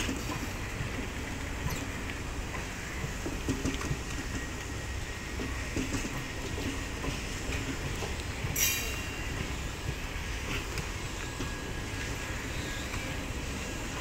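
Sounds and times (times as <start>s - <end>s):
clicks from rail joints: 0.0s - 4.7s, 5.4s - 9.0s
train wheels rumbling on rail: 0.0s - 14.0s.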